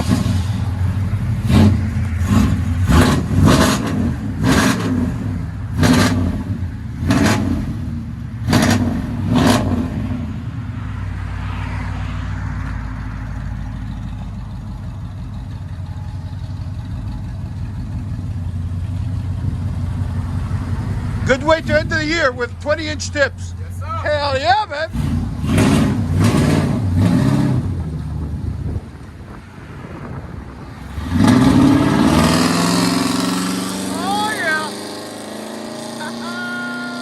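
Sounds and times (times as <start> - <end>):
engine revving in sharp blips: 1.4 - 10.3, 24.9 - 28.0, 30.9 - 37.0
deep engine idle rumble: 13.4 - 23.0.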